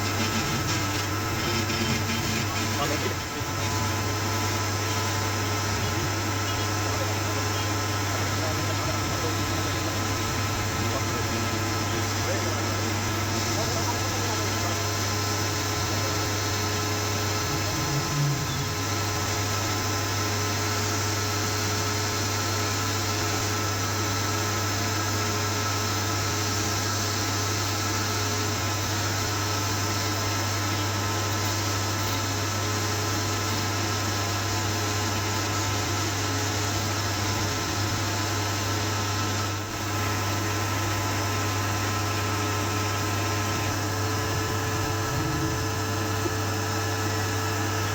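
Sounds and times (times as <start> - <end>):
motor humming: 0.0 - 47.9.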